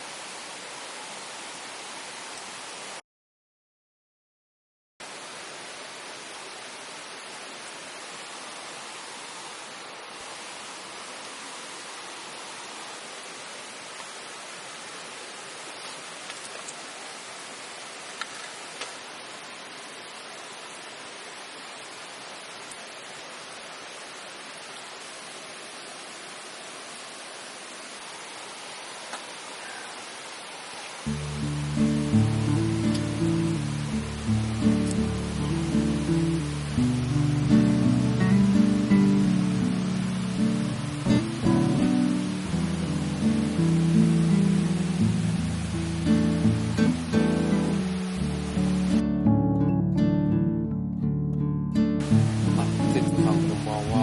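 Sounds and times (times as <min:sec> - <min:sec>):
steady hiss: 0:00.0 - 0:03.0, 0:05.0 - 0:49.3, 0:52.0 - 0:54.0
faint click: 0:29.1 - 0:29.3.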